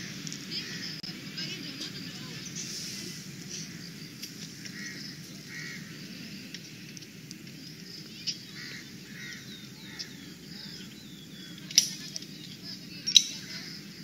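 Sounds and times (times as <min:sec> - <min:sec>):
birds chirping: 0:00.0 - 0:14.0
low background hum: 0:00.0 - 0:14.0.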